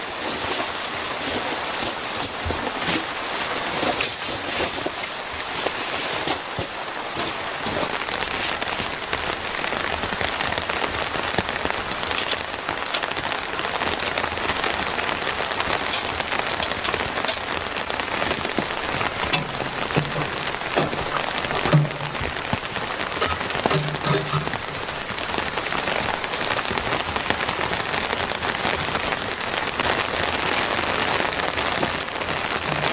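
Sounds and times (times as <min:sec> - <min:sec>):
raindrops striking near microphone: 0:00.0 - 0:32.9
steady rain falling: 0:00.0 - 0:32.9.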